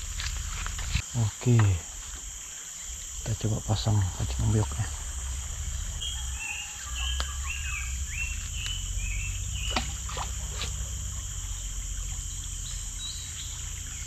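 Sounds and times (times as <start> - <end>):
high insect drone: 0.0 - 14.0
bird whistling: 6.0 - 9.9.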